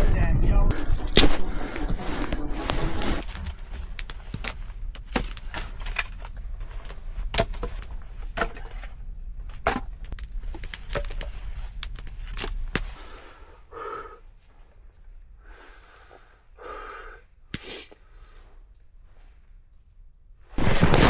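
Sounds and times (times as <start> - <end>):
low steady rumble: 0.0 - 13.6
wood cracking and snapping: 3.3 - 8.5, 9.5 - 13.2, 20.6 - 21.0.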